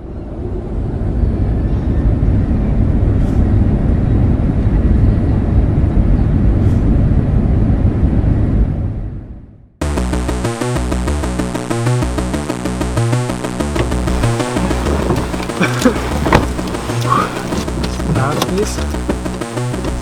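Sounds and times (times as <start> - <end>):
moving vehicle rumble: 13.7 - 20.0.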